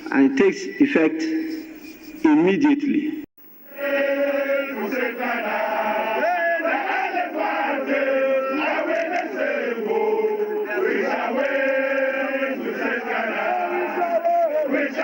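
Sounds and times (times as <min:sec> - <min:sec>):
crowd chanting: 0:03.7 - 0:15.0.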